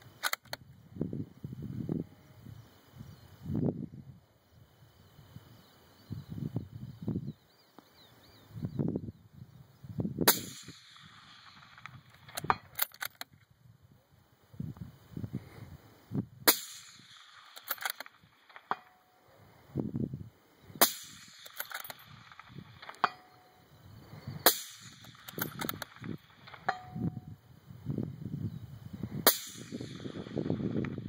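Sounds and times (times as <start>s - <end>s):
rifle bolt clicks: 0.1s - 0.6s, 11.4s - 13.4s, 16.8s - 18.9s, 20.8s - 23.2s, 24.5s - 26.8s
suppressed rifle shots: 10.2s - 13.3s, 16.4s - 19.0s, 20.8s - 23.4s, 24.4s - 27.0s, 29.2s - 31.0s
bullet ringing on steel plate: 20.8s - 23.6s, 24.4s - 27.3s.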